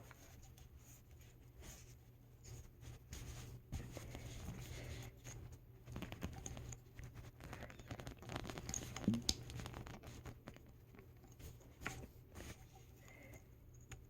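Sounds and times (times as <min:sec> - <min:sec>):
soft plastic clicks: 0:13.0 - 0:14.0.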